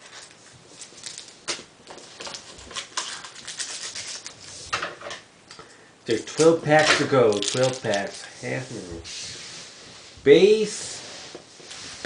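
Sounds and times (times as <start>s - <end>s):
trading cards clicking and rustling: 6.3s - 8.3s.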